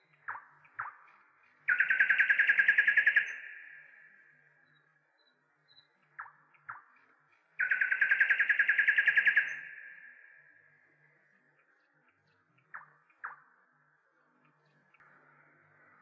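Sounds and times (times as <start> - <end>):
bird calling with fast trill: 1.7 - 4.8, 7.6 - 10.5.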